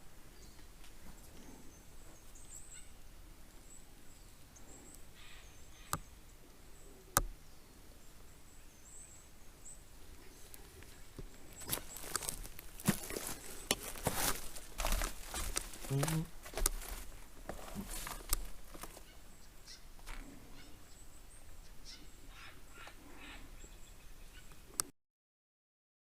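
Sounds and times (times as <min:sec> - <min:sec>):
footsteps crunching on trail: 0:10.4 - 0:19.2.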